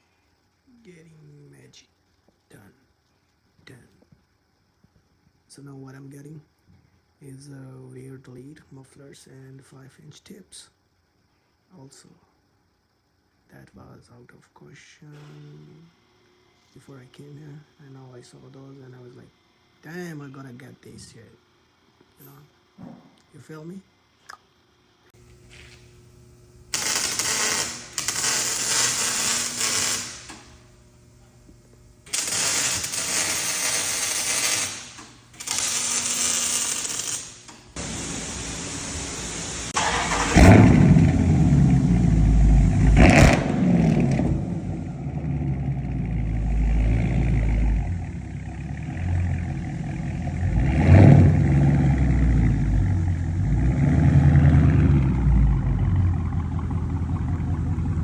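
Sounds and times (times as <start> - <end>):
hissing noise bursts: 32.1 - 44.8
car engine starting: 37.7 - 58.0
engine rumbling and revving: 37.8 - 58.0.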